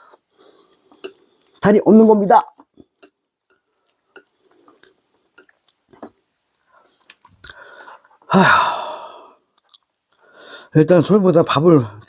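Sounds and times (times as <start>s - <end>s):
faint eating clicks: 2.5s - 7.6s, 9.5s - 10.3s
man sighing loudly: 7.6s - 9.4s.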